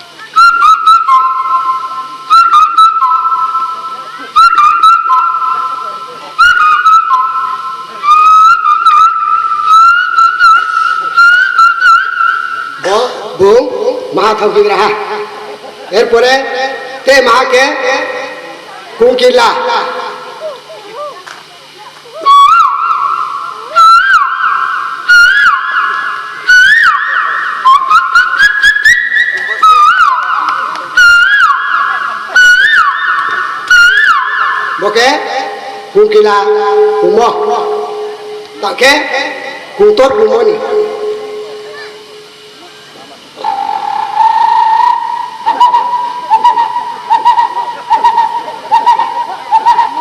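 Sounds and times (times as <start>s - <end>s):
shrill whistle: 0.4s - 12.8s, 22.2s - 35.2s, 43.6s - 50.0s.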